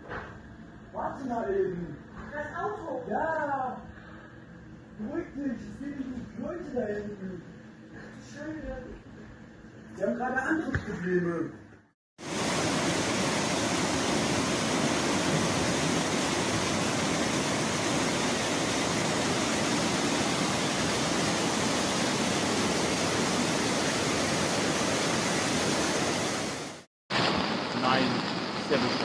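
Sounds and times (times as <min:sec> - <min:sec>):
floodwater rushing: 0:12.2 - 0:29.0.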